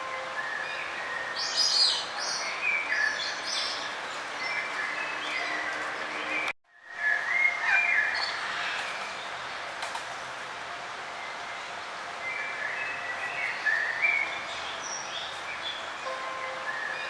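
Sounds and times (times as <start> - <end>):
songbirds chirping: 0.0 - 17.0
steady outdoor hiss: 0.0 - 17.0.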